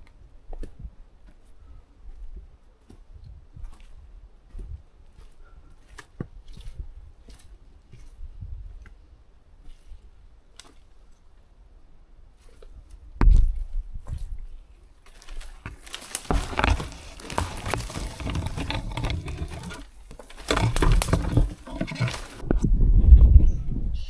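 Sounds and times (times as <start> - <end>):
rustling on microphone: 15.1 - 22.7.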